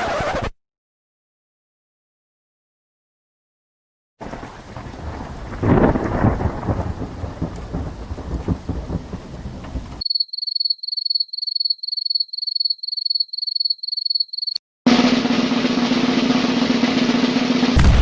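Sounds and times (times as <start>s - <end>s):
rain: 4.2s - 10.0s
rumbling thunder: 4.2s - 10.0s, 17.7s - 18.0s.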